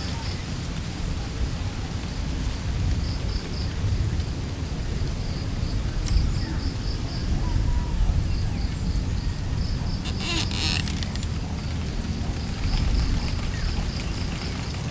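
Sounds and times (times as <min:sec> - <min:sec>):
wind buffeting microphone: 0:00.0 - 0:14.9
insect chirping: 0:10.0 - 0:11.1.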